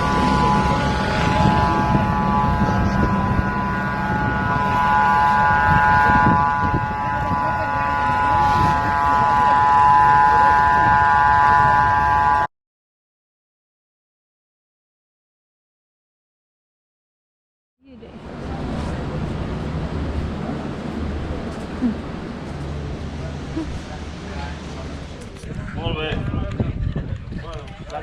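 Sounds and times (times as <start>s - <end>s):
helicopter turbine engine whine: 0.0s - 12.5s.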